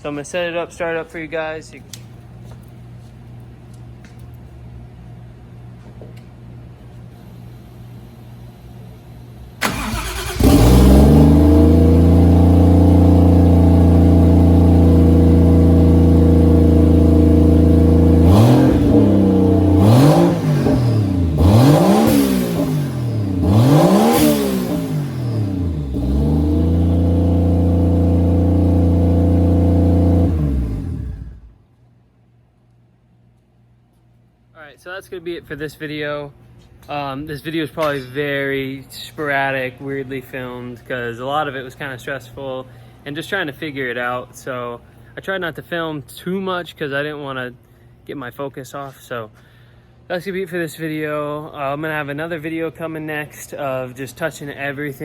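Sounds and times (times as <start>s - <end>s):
car engine starting and idling: 9.5s - 31.6s
engine revving: 9.6s - 31.6s.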